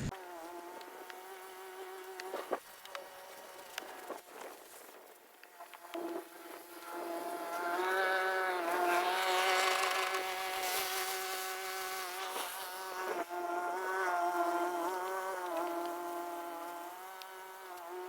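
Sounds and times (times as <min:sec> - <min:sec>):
small motor whining: 0:07.7 - 0:13.3.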